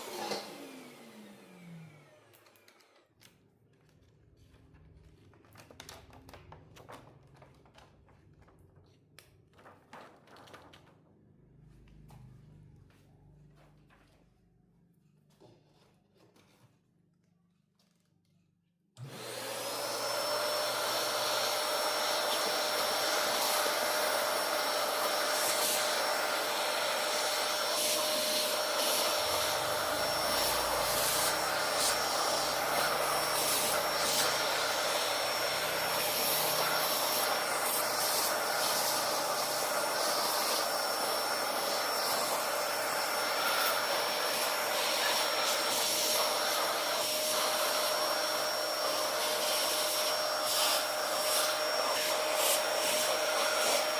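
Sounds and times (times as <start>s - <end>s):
vacuum cleaner motor whine: 0.0s - 3.1s, 19.0s - 53.9s.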